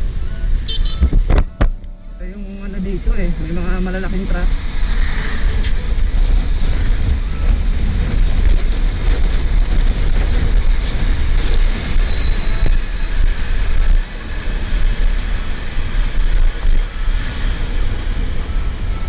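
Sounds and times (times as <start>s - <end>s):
vehicle wind and road noise: 0.0s - 19.0s
high squeal: 11.2s - 13.4s.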